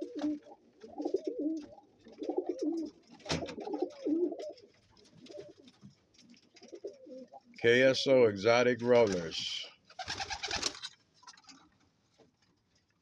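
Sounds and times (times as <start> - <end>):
pigeon cooing: 0.0 - 4.6, 6.6 - 7.5.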